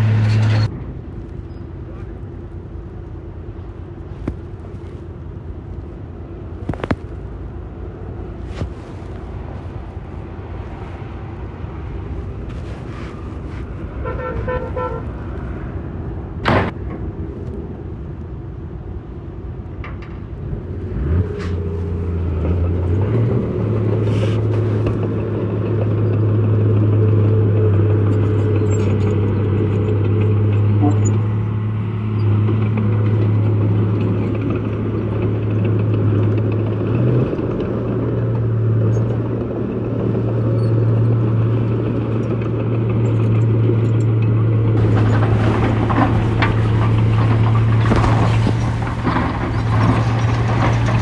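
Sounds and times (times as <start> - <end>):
heavy diesel machinery running: 0.0 - 51.0
pulsing horn toot: 13.9 - 15.3, 30.8 - 31.3.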